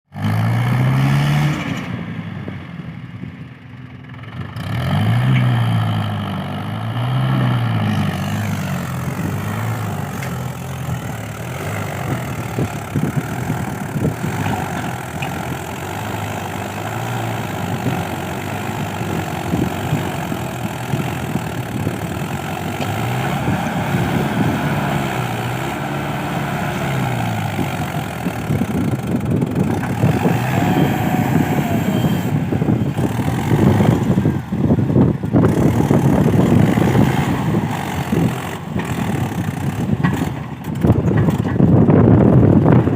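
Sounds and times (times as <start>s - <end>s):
tractor diesel engine revving: 0.1s - 42.9s
rattling clatter: 38.2s - 42.9s.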